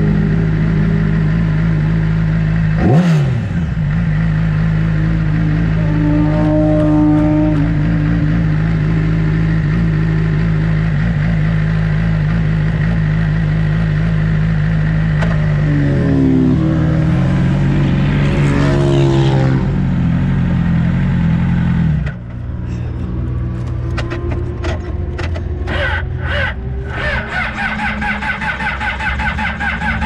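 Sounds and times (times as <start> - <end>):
motorbike engine running steadily: 0.0 - 30.0
passing engine sweeping up and down: 5.1 - 9.1, 15.3 - 20.4.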